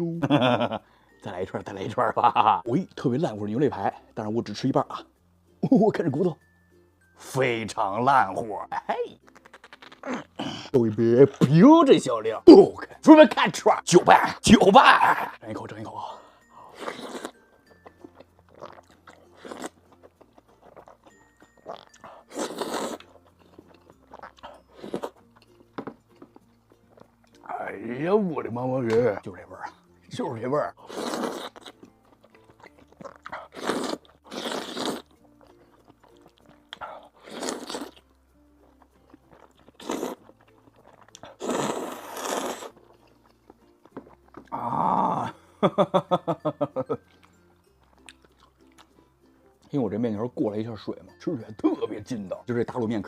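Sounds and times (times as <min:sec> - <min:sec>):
faint background music: 0:00.0 - 0:53.0
person chewing: 0:09.2 - 0:10.7, 0:16.6 - 0:27.4, 0:30.8 - 0:45.3, 0:47.0 - 0:49.0
eating noodles close up: 0:09.2 - 0:11.6, 0:16.0 - 0:27.5, 0:30.7 - 0:45.4, 0:46.8 - 0:49.0.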